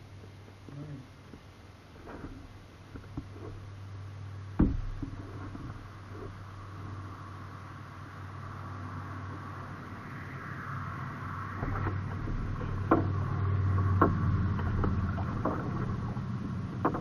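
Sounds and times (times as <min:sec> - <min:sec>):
wind rumble on microphone: 0:02.0 - 0:17.0
paddle knocks: 0:04.6 - 0:06.4, 0:11.6 - 0:17.0
paddle water swishing: 0:11.1 - 0:17.0.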